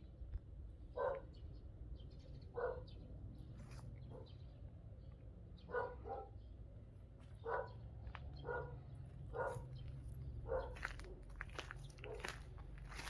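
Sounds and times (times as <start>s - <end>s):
dog barking: 1.0s - 1.3s, 2.6s - 2.9s, 5.7s - 6.4s, 7.4s - 7.8s, 8.4s - 9.7s, 10.4s - 11.0s.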